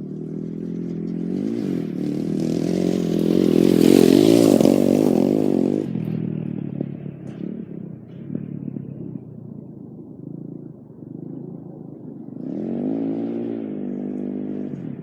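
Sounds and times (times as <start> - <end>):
dirt bike engine revving: 0.0 - 6.2, 12.3 - 15.0.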